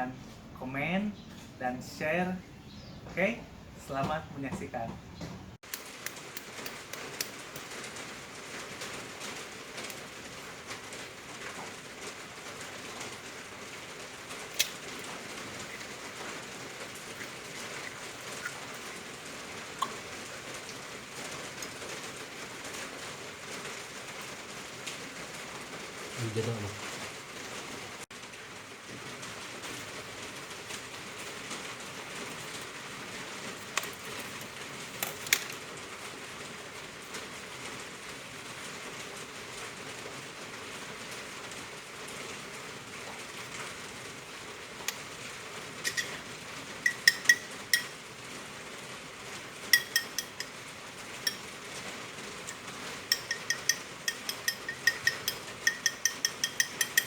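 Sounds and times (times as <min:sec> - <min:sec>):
heavy rain falling: 0:05.8 - 0:49.8, 0:50.4 - 0:53.2
metallic clinks of kitchen utensils: 0:45.8 - 0:46.2, 0:46.9 - 0:48.0, 0:49.7 - 0:50.6, 0:52.5 - 0:57.0.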